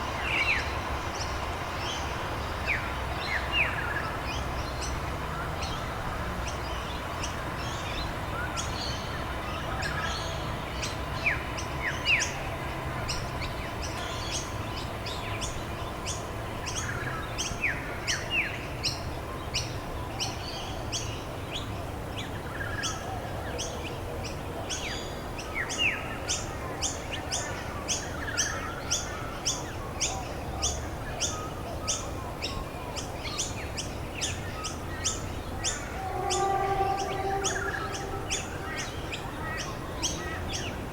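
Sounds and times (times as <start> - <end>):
low background noise: 0.0 - 40.9
descending whistled bird notes: 35.1 - 40.3.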